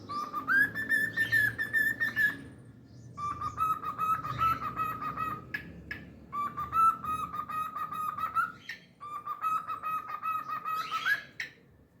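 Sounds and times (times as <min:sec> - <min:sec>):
cockatiel whistling: 0:00.1 - 0:02.4, 0:03.2 - 0:05.4, 0:06.3 - 0:11.4.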